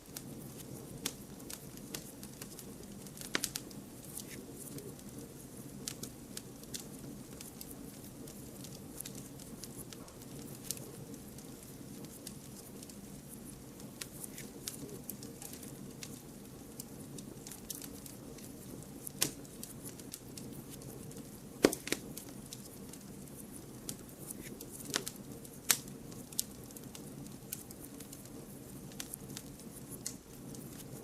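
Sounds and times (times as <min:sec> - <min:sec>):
fire crackling and popping: 0:00.0 - 0:31.0
wood fire flame rush: 0:00.0 - 0:31.0.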